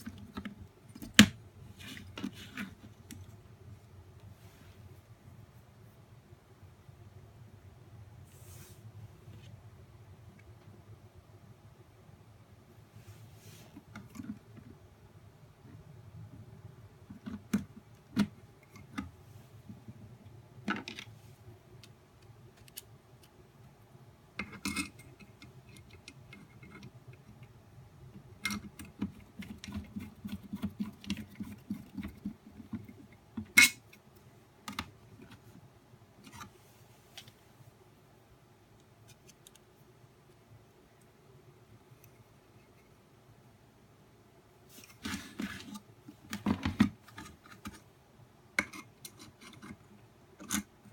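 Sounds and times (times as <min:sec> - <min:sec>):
plastic parts clicking and knocking: 0:20.6 - 0:21.1, 0:28.1 - 0:33.8.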